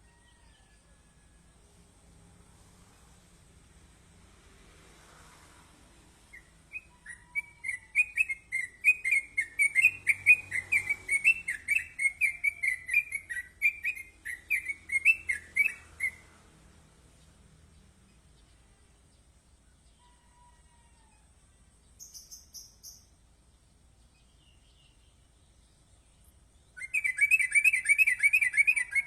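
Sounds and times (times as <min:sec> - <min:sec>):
bird chirping rapidly: 0:06.3 - 0:16.3, 0:22.0 - 0:23.1, 0:24.2 - 0:29.0.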